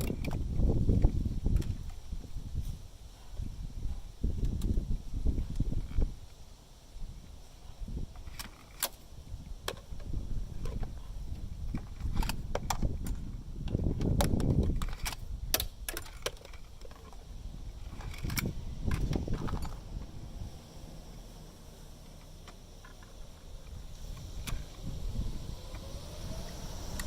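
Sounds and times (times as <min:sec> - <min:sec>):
metal tools clinking: 0:17.8 - 0:19.9.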